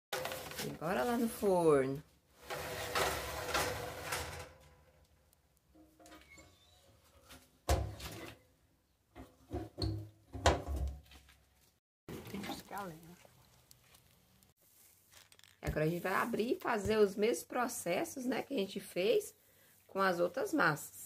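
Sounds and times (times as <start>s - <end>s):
baking trays scraping: 2.3s - 5.0s.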